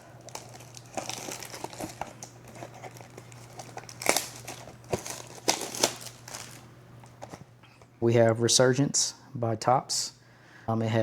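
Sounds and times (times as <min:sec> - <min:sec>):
plastic wrapping crinkling: 0:00.0 - 0:07.4.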